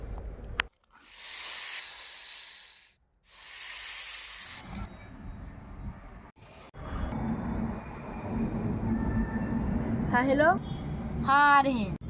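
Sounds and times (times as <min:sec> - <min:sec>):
loud hisses: 0:01.0 - 0:04.6.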